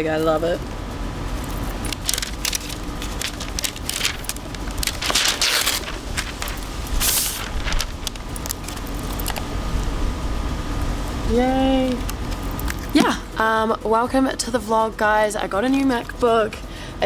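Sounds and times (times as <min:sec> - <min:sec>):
packaging crinkling and rustling: 0:01.5 - 0:09.5.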